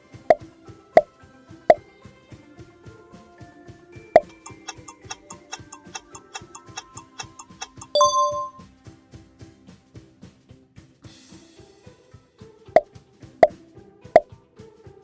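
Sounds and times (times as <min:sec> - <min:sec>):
fast clock-like ticking: 0:04.2 - 0:08.0
background music with beat: 0:04.2 - 0:08.6
loud bell-like ding: 0:07.8 - 0:08.6.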